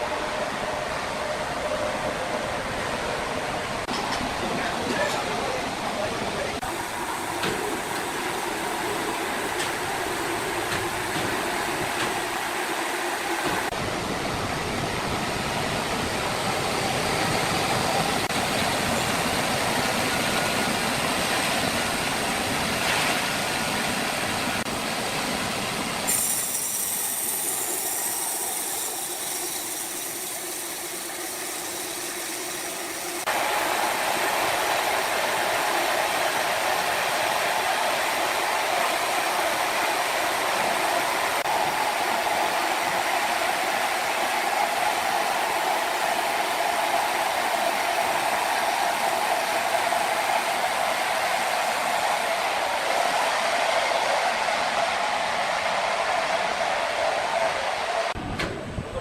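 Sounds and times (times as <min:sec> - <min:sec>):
sawmill machinery sawing logs: 0:06.5 - 0:13.8, 0:16.0 - 0:52.5.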